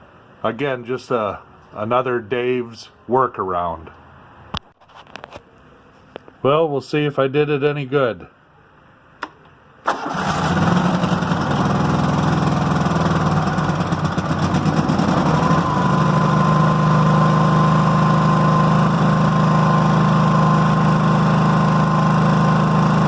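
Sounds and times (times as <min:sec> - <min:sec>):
lawn tractor engine running: 0:09.9 - 0:23.0.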